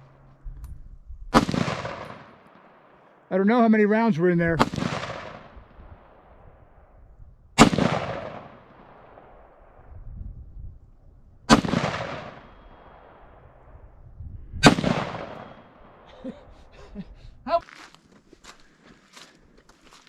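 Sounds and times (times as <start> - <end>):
rifle shots with echo: 1.3 - 3.3, 4.6 - 6.9, 7.6 - 9.9, 11.5 - 13.7, 14.6 - 16.1.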